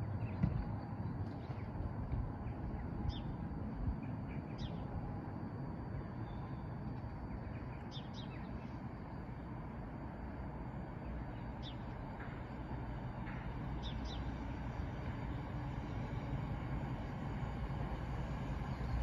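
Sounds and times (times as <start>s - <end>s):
low outdoor rumble: 0.0s - 19.0s
small birds chirping: 13.8s - 14.4s.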